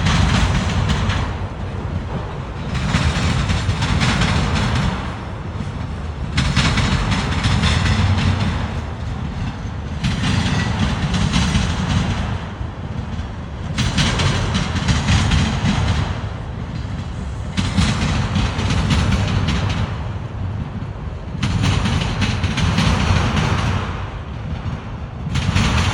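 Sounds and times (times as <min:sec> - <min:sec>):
wheel clatter: 0:00.0 - 0:12.3
freight cars rolling past: 0:00.0 - 0:25.9.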